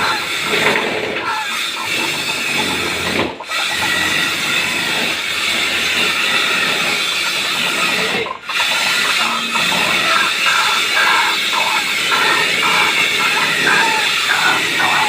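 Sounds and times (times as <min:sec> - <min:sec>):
waterhen calling: 0:08.2 - 0:15.0.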